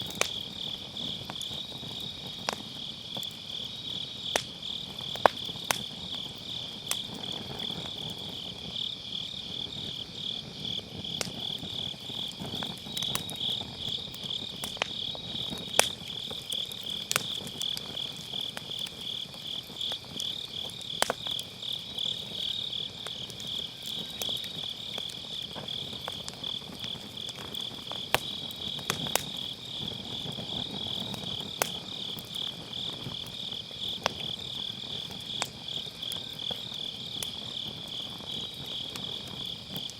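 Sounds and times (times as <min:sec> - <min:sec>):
fire hissing: 0:00.0 - 0:39.9
firewood crackling and popping: 0:00.0 - 0:39.9
insects chirping: 0:00.0 - 0:39.9.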